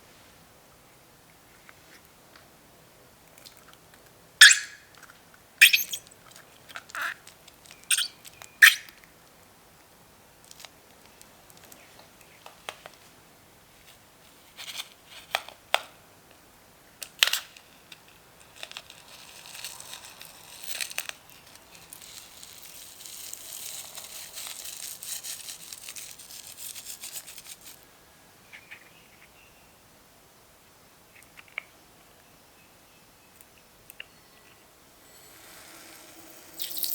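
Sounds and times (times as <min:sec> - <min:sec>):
dense crackling and crinkling: 0:10.4 - 0:13.1, 0:17.9 - 0:27.8.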